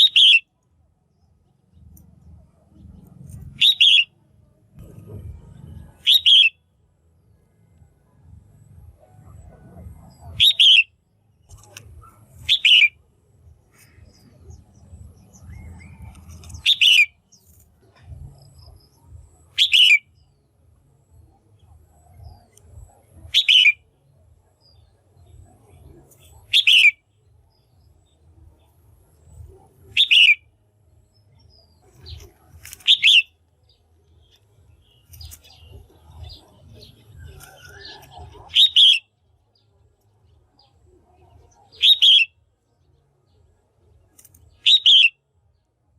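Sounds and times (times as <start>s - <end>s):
bulbul chirping call: 0.0s - 0.6s, 3.4s - 4.2s, 6.0s - 6.6s, 10.3s - 13.0s, 15.4s - 17.4s, 19.5s - 20.3s, 23.3s - 23.9s, 26.4s - 27.0s, 29.9s - 30.5s, 32.0s - 33.4s, 34.3s - 39.2s, 41.7s - 42.4s, 44.6s - 45.2s.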